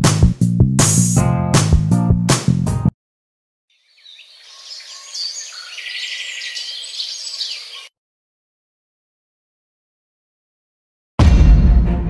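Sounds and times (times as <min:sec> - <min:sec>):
small birds chirping: 0:03.7 - 0:07.9.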